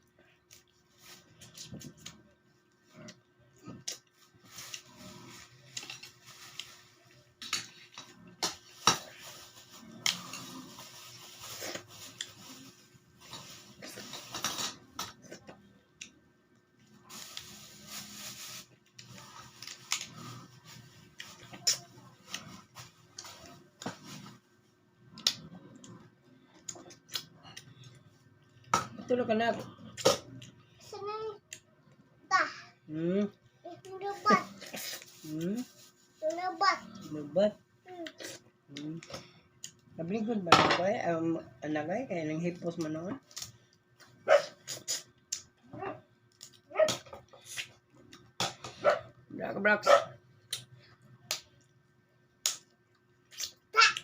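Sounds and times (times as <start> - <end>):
chewing: 25.0 - 28.7.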